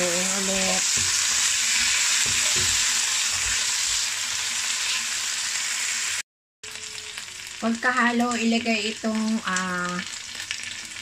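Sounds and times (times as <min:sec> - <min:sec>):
chicken sizzling in hot oil: 0:00.0 - 0:11.0
spatula knocking on wok: 0:00.8 - 0:03.6.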